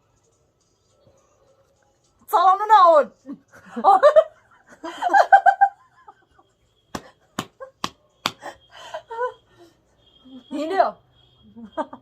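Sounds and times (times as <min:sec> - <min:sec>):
woman laughing: 0:03.5 - 0:06.4, 0:07.6 - 0:09.5, 0:11.6 - 0:12.0.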